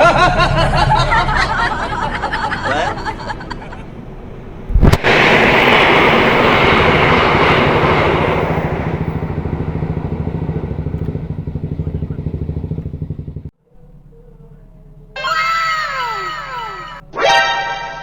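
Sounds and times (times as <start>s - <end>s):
passing train rumbling: 0.0s - 15.2s
falling whistle tones effect: 15.2s - 18.0s.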